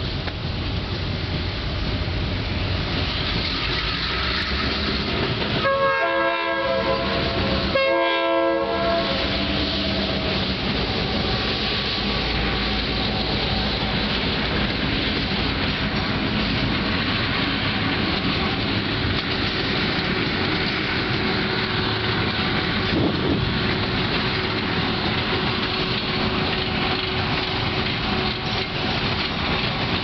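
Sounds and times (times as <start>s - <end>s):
train rumbling on rails: 0.0s - 30.0s
locomotive air horn blasts: 5.6s - 9.6s.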